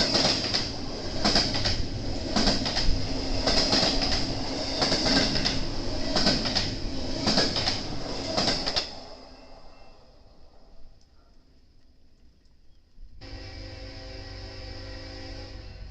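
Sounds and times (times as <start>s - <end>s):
train wheels clacking on rail joints: 0.0s - 9.0s
freight train rumble: 0.0s - 11.0s, 13.2s - 15.9s.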